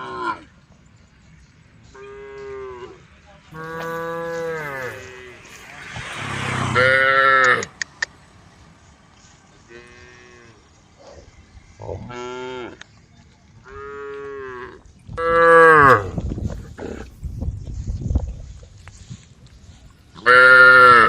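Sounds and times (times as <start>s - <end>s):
cows mooing: 3.6s - 7.7s, 13.7s - 17.1s, 20.2s - 21.0s.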